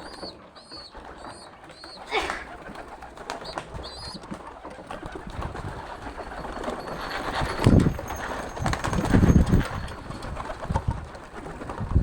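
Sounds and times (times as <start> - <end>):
pet birds calling: 0.0 - 2.4, 3.4 - 4.3.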